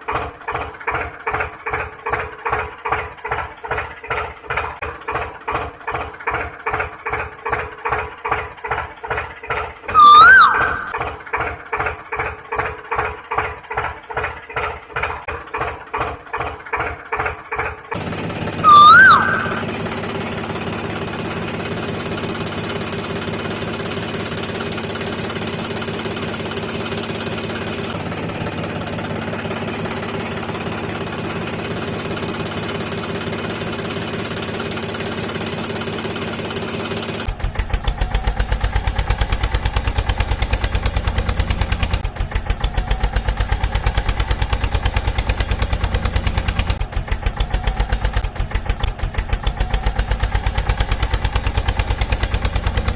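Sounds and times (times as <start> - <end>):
loud gliding chirp: 9.9 - 11.0, 18.6 - 19.8.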